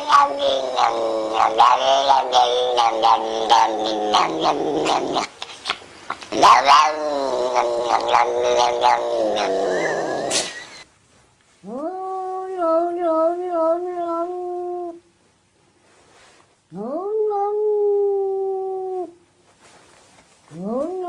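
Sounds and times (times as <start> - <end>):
cat yowling: 0.0 - 5.8, 6.4 - 10.6.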